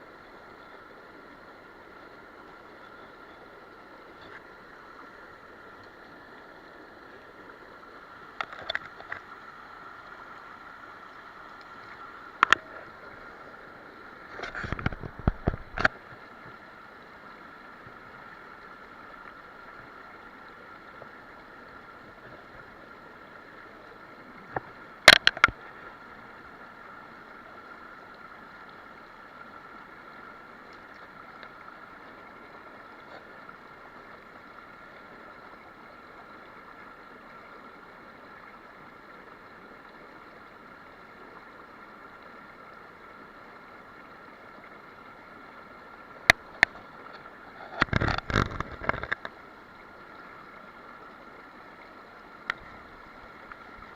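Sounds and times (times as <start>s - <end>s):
stream flowing over rocks: 0.0s - 53.9s
sharp clicks and knocks: 25.1s - 25.6s.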